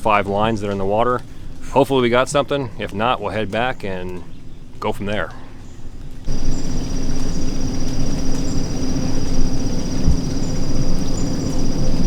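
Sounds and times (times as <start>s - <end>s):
insects trilling: 6.3s - 12.0s
low rumble: 6.3s - 12.0s.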